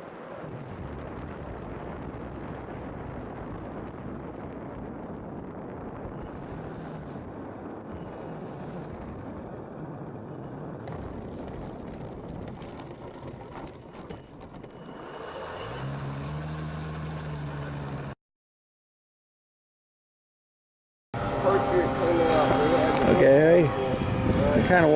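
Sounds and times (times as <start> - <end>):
low rumbling noise: 0.0 - 18.2, 21.2 - 24.9
engine hum: 10.2 - 18.2, 21.2 - 24.9.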